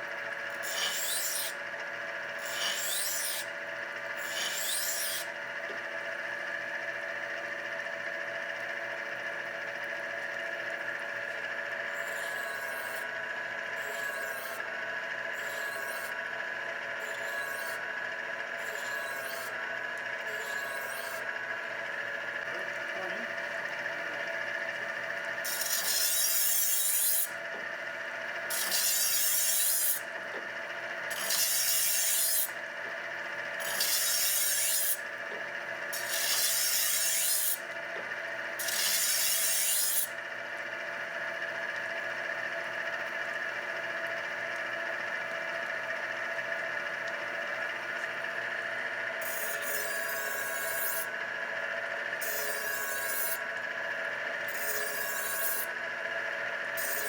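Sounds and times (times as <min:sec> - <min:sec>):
knife rasping on honing wheels: 0:00.6 - 0:01.6, 0:02.4 - 0:03.5, 0:04.2 - 0:05.3, 0:11.9 - 0:13.1, 0:13.8 - 0:14.6, 0:15.4 - 0:16.1, 0:17.0 - 0:17.8, 0:18.6 - 0:19.6, 0:20.2 - 0:21.3, 0:25.4 - 0:27.3, 0:28.4 - 0:30.1, 0:31.1 - 0:32.6, 0:33.6 - 0:35.1, 0:35.9 - 0:37.7, 0:38.6 - 0:40.1, 0:49.2 - 0:51.1, 0:52.2 - 0:53.5, 0:54.5 - 0:55.7
knife honer motor hum: 0:10.2 - 0:57.0.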